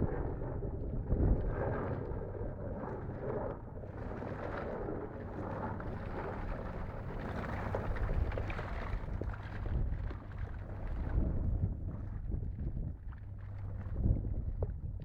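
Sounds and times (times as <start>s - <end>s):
wind on microphone: 0.0s - 15.0s
boat engine humming: 3.7s - 11.2s.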